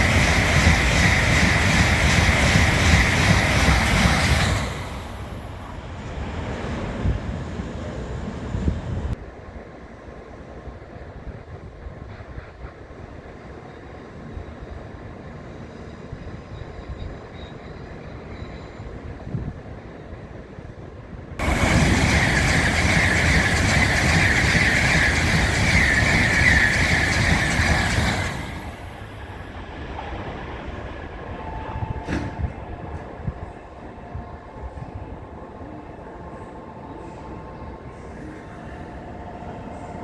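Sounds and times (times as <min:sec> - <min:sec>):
train rushing past: 0:00.0 - 0:09.2, 0:21.4 - 0:40.0
train low rumble: 0:00.0 - 0:40.0.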